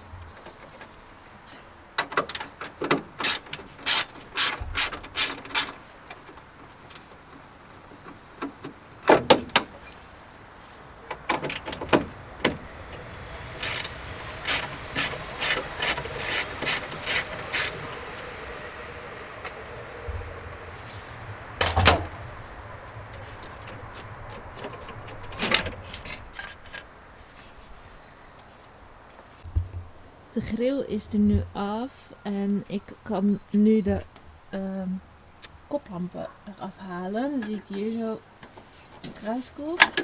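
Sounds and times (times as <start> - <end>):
ratchet wrench clicking: 3.2 - 5.7, 13.6 - 17.8.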